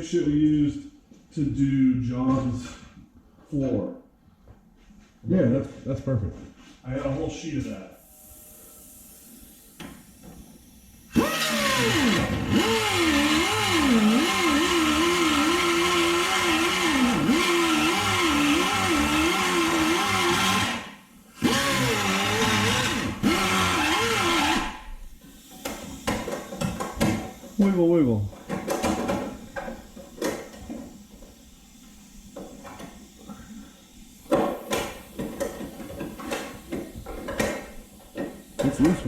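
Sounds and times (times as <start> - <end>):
grinder cutting steel: 11.1 - 25.0.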